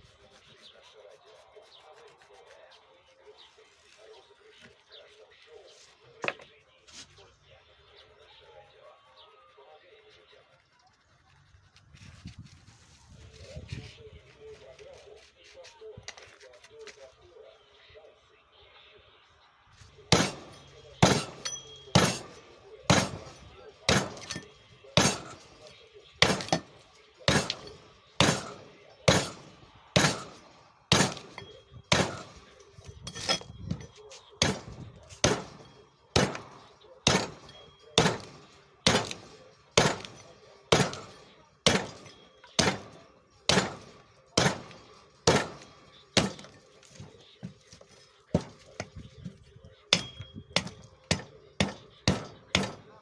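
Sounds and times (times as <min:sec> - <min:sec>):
axe chopping wood: 0:20.1 - 0:25.5, 0:26.2 - 0:33.5, 0:34.4 - 0:47.8, 0:49.9 - 0:53.0.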